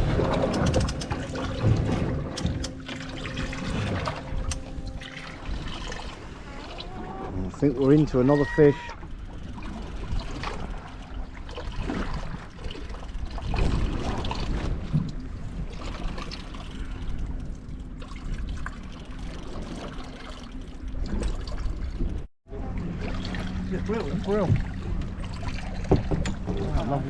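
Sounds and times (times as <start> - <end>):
steady low hum: 0.0 - 8.2, 22.5 - 27.0
water lapping against boat hull: 0.0 - 27.0.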